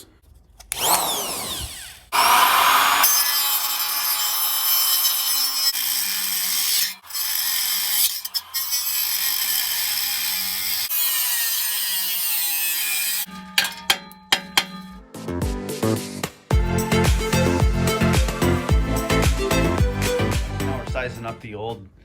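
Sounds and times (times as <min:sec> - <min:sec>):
grinder cutting metal: 0:00.7 - 0:14.9.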